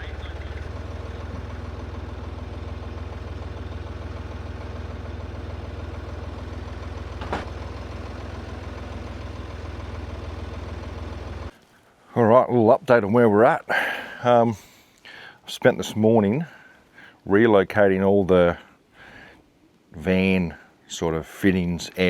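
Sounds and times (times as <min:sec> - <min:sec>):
pickup engine idling: 0:00.0 - 0:11.5.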